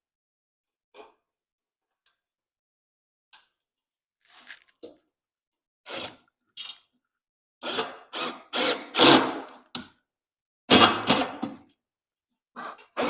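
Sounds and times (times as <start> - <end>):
power drill driving screw into wood: 7.6 - 9.6, 10.7 - 11.5.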